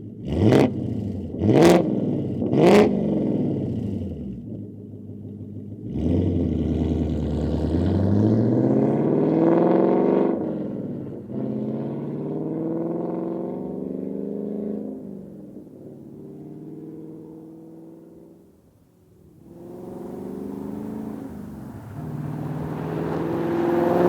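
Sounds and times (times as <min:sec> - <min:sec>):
car engine revving: 0:00.2 - 0:04.4, 0:19.2 - 0:24.0.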